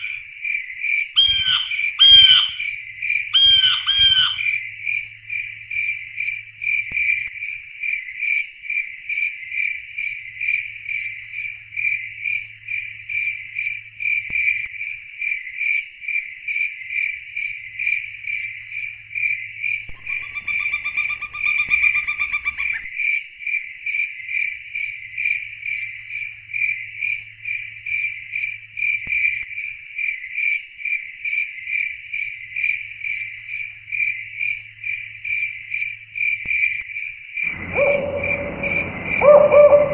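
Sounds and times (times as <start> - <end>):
different pitched insect call: 0.0 - 8.2, 17.7 - 23.0, 32.6 - 39.9
high-pitched insect chirping: 1.2 - 2.7, 3.3 - 4.5, 37.5 - 39.9
faint low hum: 37.5 - 39.9.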